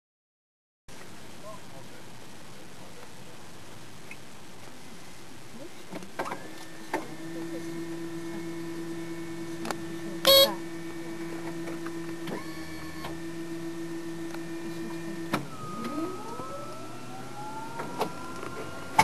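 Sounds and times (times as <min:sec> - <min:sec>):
turboprop engine whine: 0:06.3 - 0:19.0.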